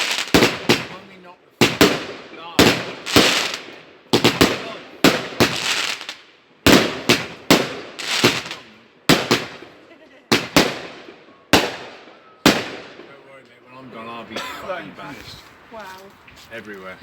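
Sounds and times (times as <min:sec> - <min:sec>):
fireworks bangs: 0:00.0 - 0:13.4.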